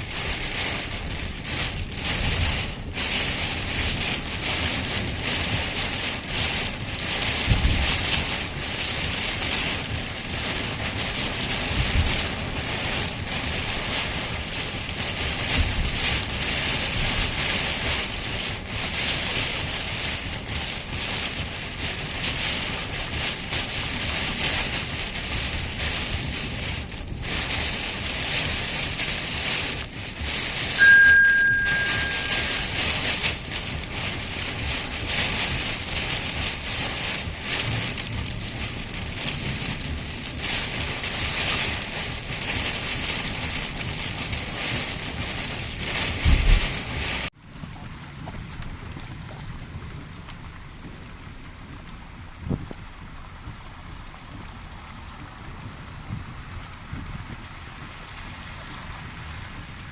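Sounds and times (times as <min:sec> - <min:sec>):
heavy rain pouring: 0:00.0 - 0:47.4, 0:48.4 - 0:59.9
short high tone: 0:30.8 - 0:33.0.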